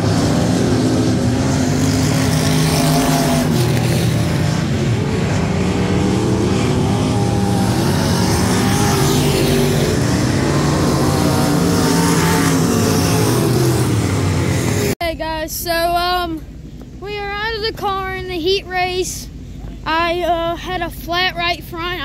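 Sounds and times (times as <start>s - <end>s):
race car engines revving: 0.0s - 15.0s
track noise: 0.0s - 22.0s.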